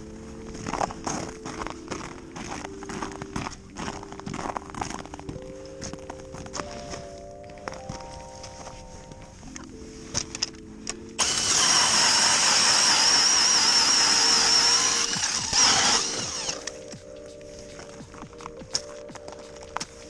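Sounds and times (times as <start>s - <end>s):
background music: 0.0s - 20.0s
small engine running: 11.2s - 16.6s.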